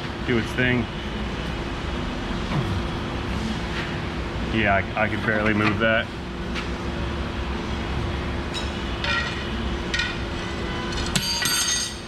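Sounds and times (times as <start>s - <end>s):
steady low hum: 0.0s - 12.0s
metal clinking and clanking: 8.5s - 12.0s.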